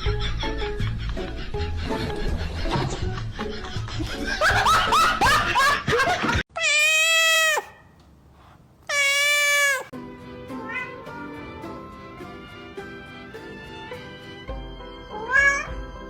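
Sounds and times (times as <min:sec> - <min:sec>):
cat meowing: 0:06.6 - 0:07.8, 0:08.8 - 0:09.9, 0:10.6 - 0:11.5, 0:15.1 - 0:15.8.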